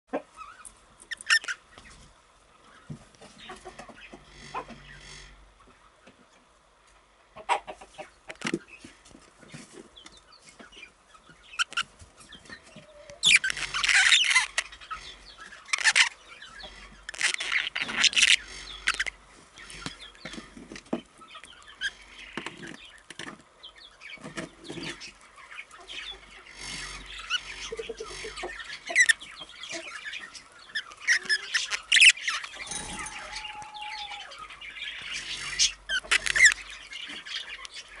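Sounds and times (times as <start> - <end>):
budgerigars chattering and chirping: 0.4 - 1.9, 2.7 - 5.9, 10.0 - 38.0.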